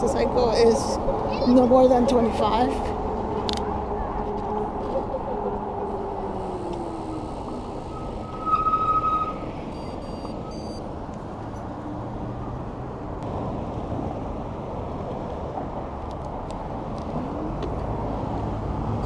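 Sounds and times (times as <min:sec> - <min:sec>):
wind and road noise: 0:00.0 - 0:19.0
steady high tone: 0:00.5 - 0:10.9
faint high beeps: 0:06.6 - 0:10.8.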